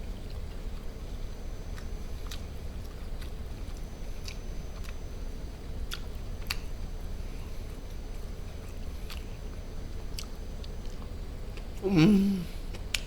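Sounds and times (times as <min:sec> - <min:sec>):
person chewing food: 0:01.7 - 0:05.0, 0:05.8 - 0:06.8, 0:08.6 - 0:09.3.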